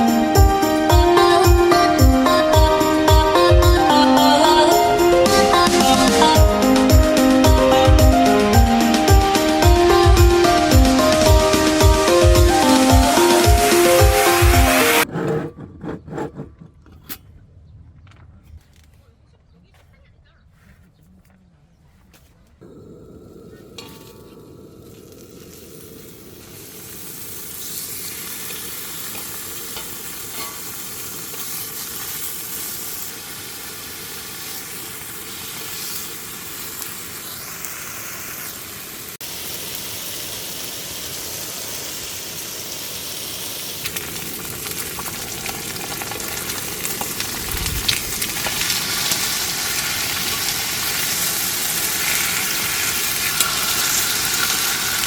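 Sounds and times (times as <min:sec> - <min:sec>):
food sizzling and frying: 0:00.0 - 0:15.1, 0:22.6 - 0:55.0.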